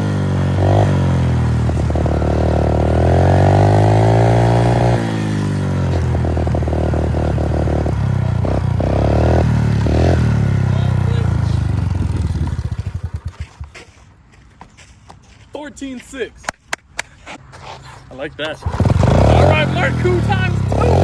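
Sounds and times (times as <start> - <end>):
pit bike engine revving: 0.0 - 14.0, 18.5 - 21.0.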